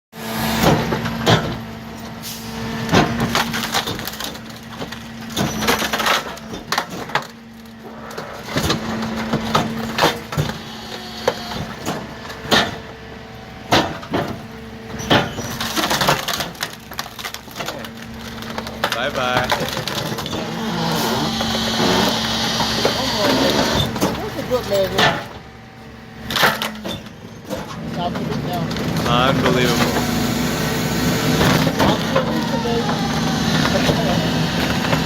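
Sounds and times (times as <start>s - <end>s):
garbage truck machinery hum: 0.2s - 35.0s
wood cracking and splintering: 2.9s - 10.6s, 15.0s - 25.3s, 26.3s - 35.0s.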